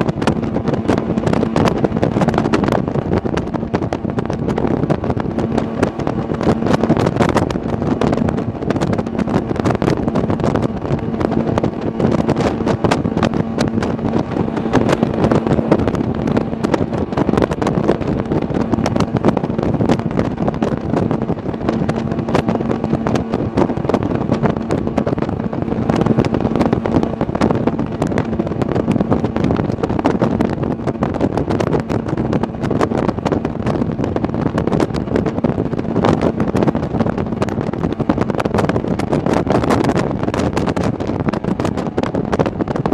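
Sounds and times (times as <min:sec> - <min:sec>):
jet boat engine drone: 0:00.0 - 0:42.9
rushing water: 0:00.0 - 0:42.9
wind buffeting microphone: 0:00.0 - 0:42.9.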